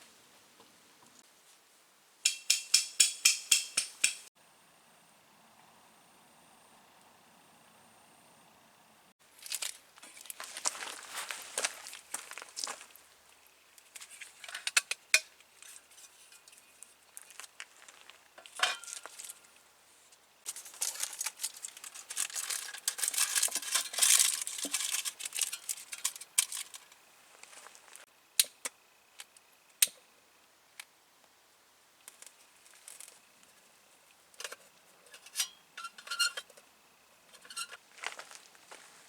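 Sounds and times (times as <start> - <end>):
crinkling and rustling: 9.2 - 13.2, 13.8 - 19.6, 20.5 - 28.1, 32.0 - 33.6, 37.4 - 39.0.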